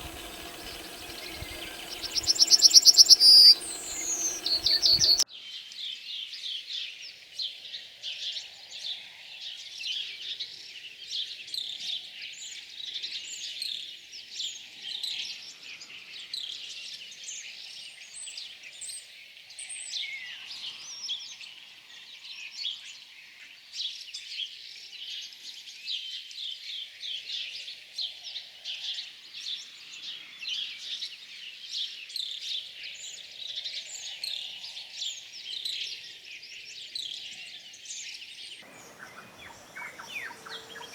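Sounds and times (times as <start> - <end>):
songbirds chirping and singing: 0.0 - 5.2, 38.6 - 40.9
faint background hiss: 38.6 - 40.9.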